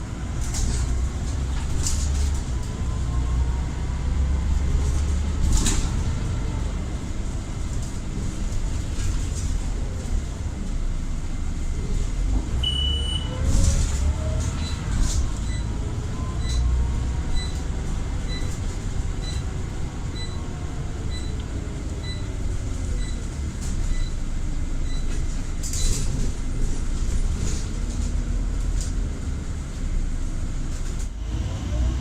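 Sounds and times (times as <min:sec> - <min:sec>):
bus engine rumble: 0:00.0 - 0:32.0
short beep: 0:12.6 - 0:13.4.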